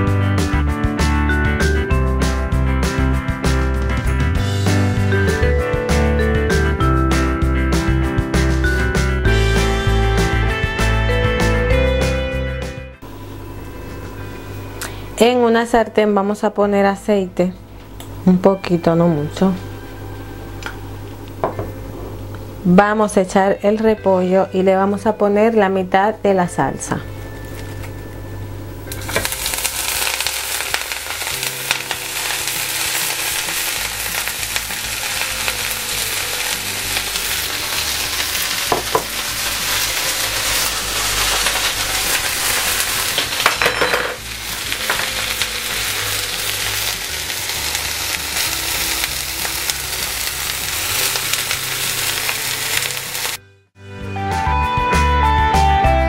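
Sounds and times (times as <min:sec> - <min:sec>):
cabbage sizzling in frying pan: 0:13.0 - 0:15.2, 0:27.2 - 0:53.4.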